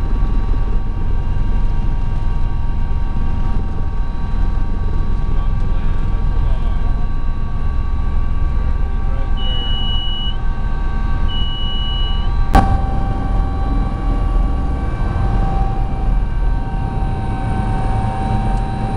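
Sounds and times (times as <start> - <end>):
helicopter drone and whine: 0.0 - 18.9.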